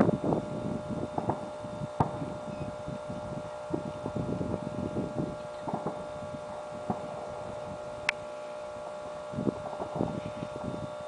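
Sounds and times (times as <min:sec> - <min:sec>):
distant fireworks popping: 0:00.0 - 0:10.9
steady hum: 0:00.0 - 0:11.0
sharp firework crack: 0:01.1 - 0:02.4, 0:05.6 - 0:07.5, 0:09.5 - 0:10.2.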